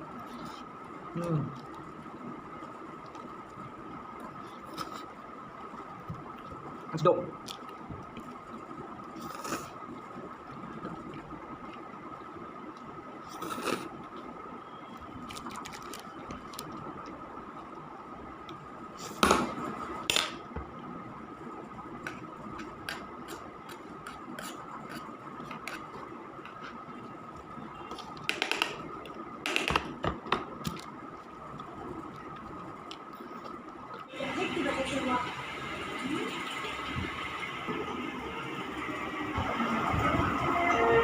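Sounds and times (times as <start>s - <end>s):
faint high hum: 0.0s - 41.0s
utensil scraping a container: 23.2s - 25.9s.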